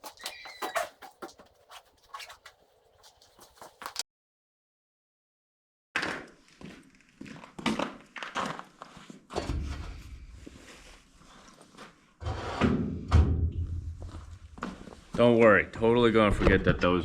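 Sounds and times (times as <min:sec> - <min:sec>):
objects knocking and thunking: 0:12.2 - 0:14.7.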